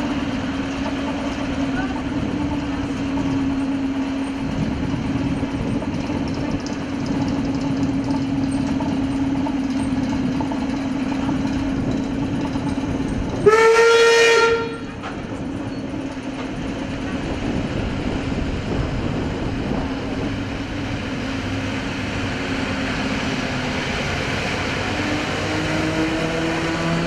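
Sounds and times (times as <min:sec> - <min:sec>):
electric train rolling past: 0:00.0 - 0:27.0
steam locomotive whistle: 0:13.4 - 0:15.0.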